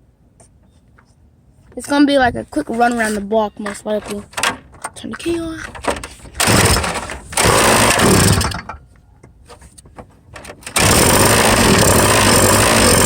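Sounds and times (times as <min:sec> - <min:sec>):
small petrol engine starting: 0:05.7 - 0:08.8, 0:10.4 - 0:13.0.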